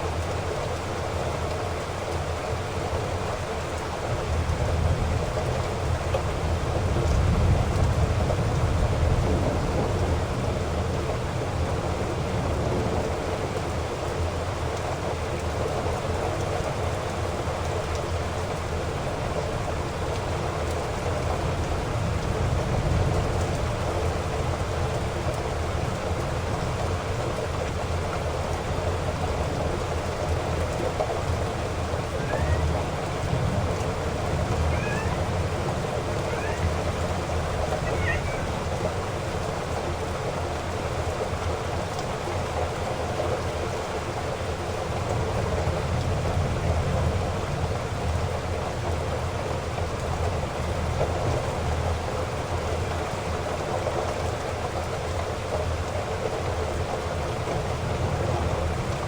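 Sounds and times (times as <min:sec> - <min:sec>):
heavy rain falling: 0:00.0 - 0:59.0
thunder rumbling: 0:04.4 - 0:15.7, 0:18.8 - 0:41.4.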